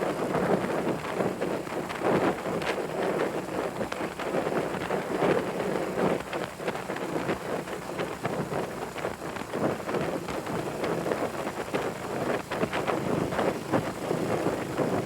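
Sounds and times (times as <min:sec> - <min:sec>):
wind buffeting microphone: 0:00.0 - 0:15.0
motorcycle engine running: 0:02.6 - 0:15.0.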